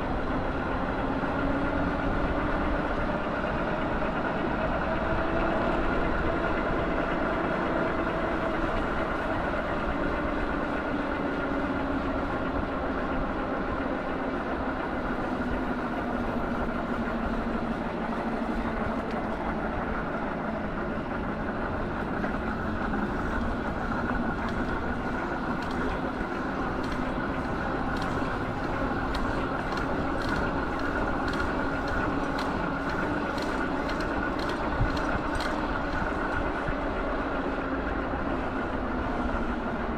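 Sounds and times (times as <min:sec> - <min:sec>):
vehicle humming: 0:06.9 - 0:39.9
light ticks: 0:24.3 - 0:36.6.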